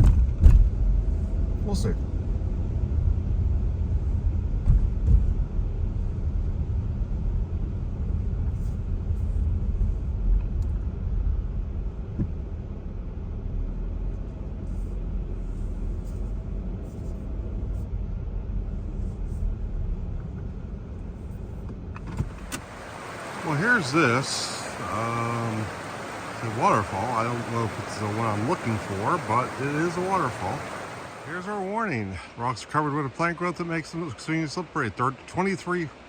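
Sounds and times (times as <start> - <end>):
car engine and tyres rumbling: 0.0 - 32.0.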